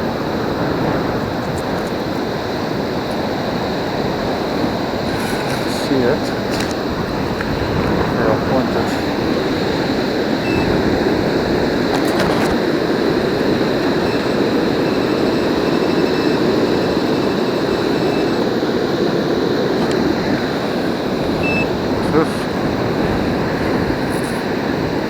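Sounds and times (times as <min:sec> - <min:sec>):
wind and surf rushing: 0:00.0 - 0:25.0
metal detector beep: 0:08.2 - 0:24.4.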